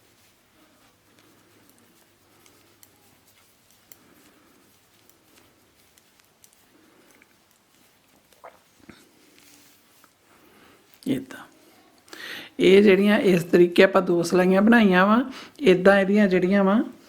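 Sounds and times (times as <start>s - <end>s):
knitting needles clicking: 0.8s - 10.2s.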